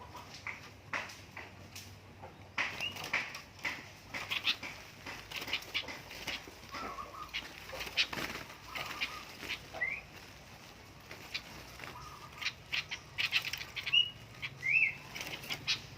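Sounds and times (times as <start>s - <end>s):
wings flapping and rustling: 0.0s - 15.9s
bird chirps: 2.2s - 3.2s, 4.1s - 10.2s, 11.1s - 15.9s.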